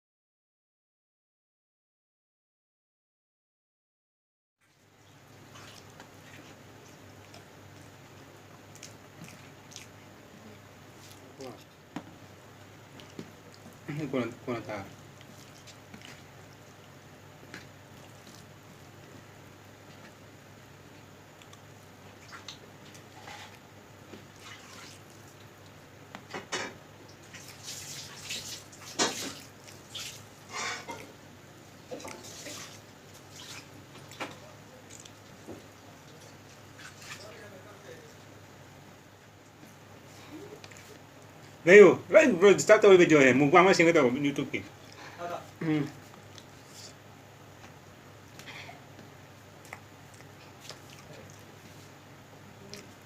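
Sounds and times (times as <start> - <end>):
mouth clicks and smacks eating: 5.6 - 10.0, 21.3 - 23.6, 31.8 - 37.2, 39.4 - 41.6, 45.9 - 51.9, 52.5 - 53.0.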